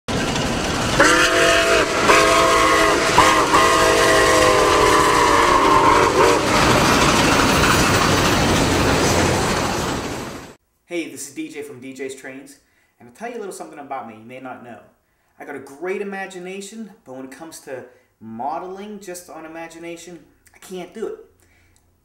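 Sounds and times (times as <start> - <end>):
moving train rumble and clatter: 0.1 - 10.6
train whistle blasts: 1.0 - 6.9.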